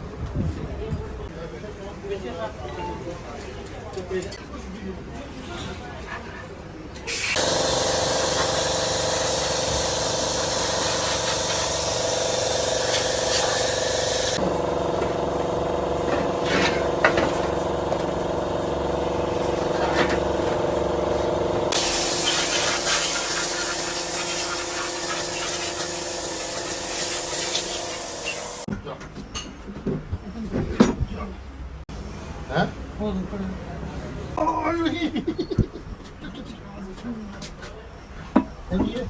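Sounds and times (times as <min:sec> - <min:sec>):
pressurised spray hissing: 0:07.1 - 0:14.5, 0:21.7 - 0:28.7
machine humming: 0:07.1 - 0:28.7.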